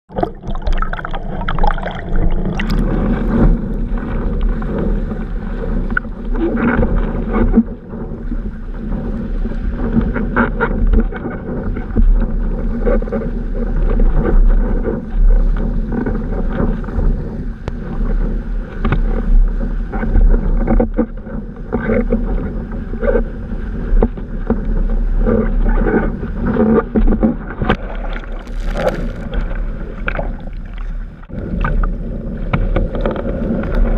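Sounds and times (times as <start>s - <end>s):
wind buffeting microphone: 0.2s - 33.9s
water splashing against board: 26.5s - 33.9s.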